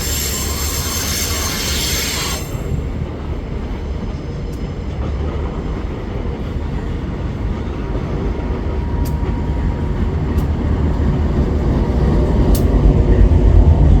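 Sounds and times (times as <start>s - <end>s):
freight train rumbling past: 0.0s - 14.0s
high-pitched wheel ticks: 8.9s - 10.6s.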